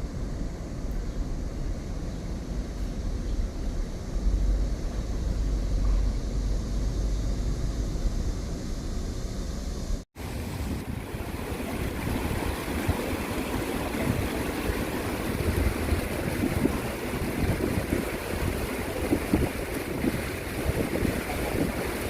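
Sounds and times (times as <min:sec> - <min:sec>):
stream water rushing: 0:10.2 - 0:22.0
wind buffeting microphone: 0:10.2 - 0:22.0.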